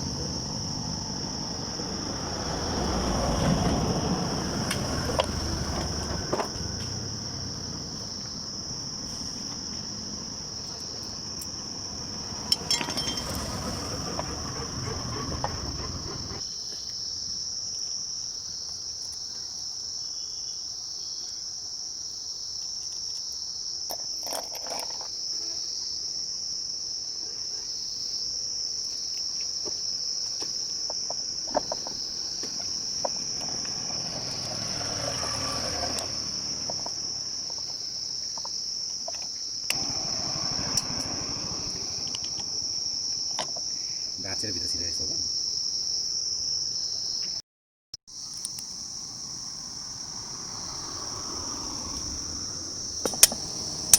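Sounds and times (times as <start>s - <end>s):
low background rumble: 0.0s - 16.4s
insects trilling: 0.0s - 47.4s, 48.1s - 53.9s.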